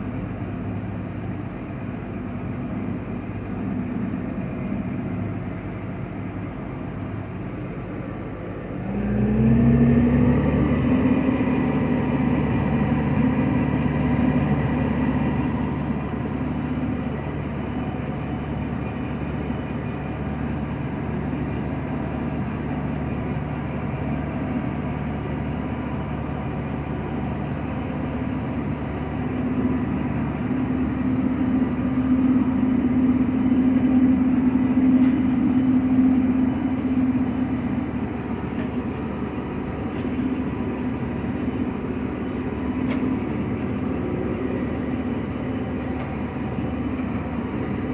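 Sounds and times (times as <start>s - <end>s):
large diesel engine revving: 8.7s - 18.8s.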